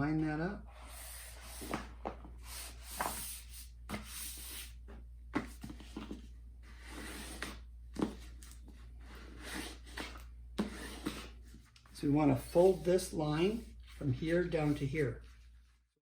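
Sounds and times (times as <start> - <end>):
poster board being folded: 1.4 - 4.8.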